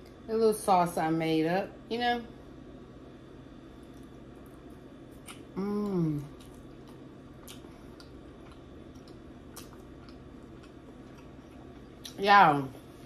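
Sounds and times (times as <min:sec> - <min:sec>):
person chewing: 0:03.8 - 0:12.2
person humming mm: 0:05.6 - 0:06.3.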